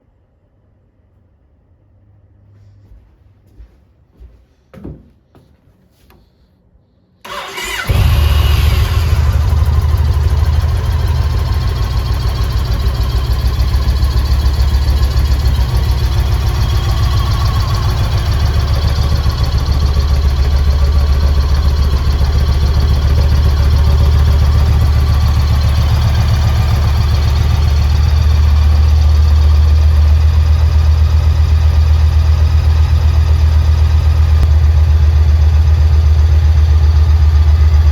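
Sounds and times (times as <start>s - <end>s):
starter motor cranking: 7.3s - 9.7s
motorcycle engine idling: 7.3s - 37.9s.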